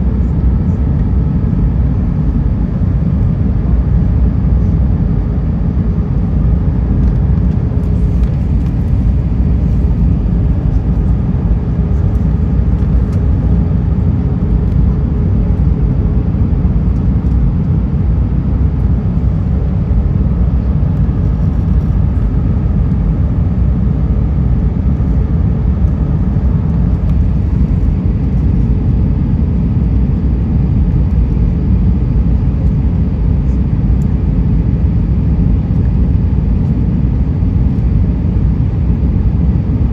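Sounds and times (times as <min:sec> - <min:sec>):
engine rumble and rushing air: 0:00.0 - 0:39.9
faint steady hum: 0:00.0 - 0:39.9.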